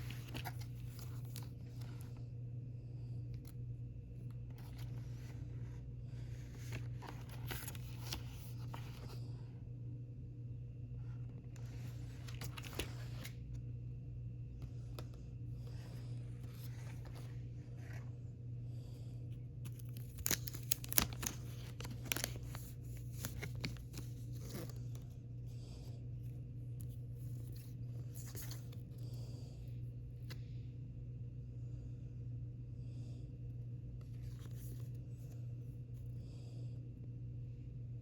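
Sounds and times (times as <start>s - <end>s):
steady low hum: 0.0s - 38.0s
packaging torn and crinkled: 19.7s - 24.7s.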